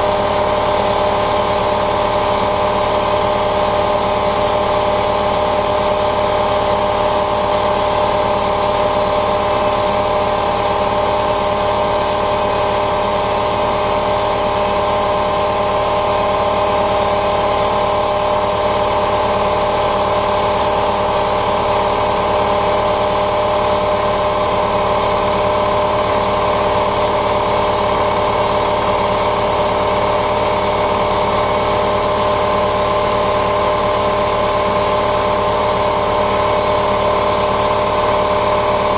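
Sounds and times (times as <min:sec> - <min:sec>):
paint spray hiss: 0:18.6 - 0:24.7, 0:26.8 - 0:36.5.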